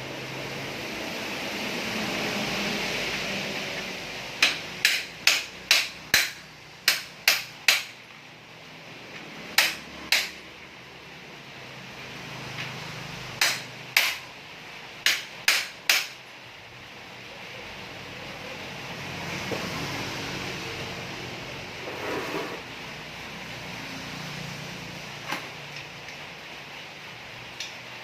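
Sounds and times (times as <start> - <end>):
hammer striking: 4.4 - 8.0, 9.5 - 10.4, 13.4 - 14.3, 15.0 - 16.2.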